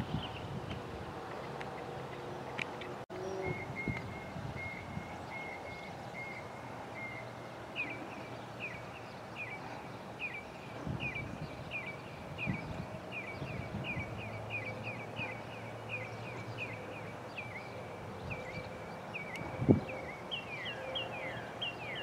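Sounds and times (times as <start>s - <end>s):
birds chirping: 1.3s - 22.0s.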